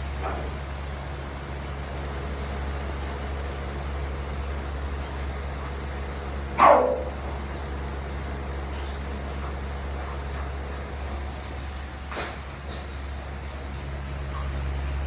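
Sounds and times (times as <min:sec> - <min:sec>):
electric fan humming: 0:00.0 - 0:15.0
dog barking: 0:06.6 - 0:07.3.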